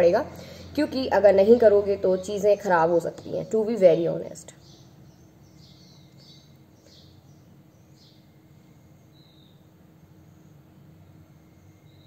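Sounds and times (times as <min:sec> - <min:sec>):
low steady hum: 0:00.0 - 0:12.0
faint bird chirps: 0:04.4 - 0:10.6, 0:11.2 - 0:12.0.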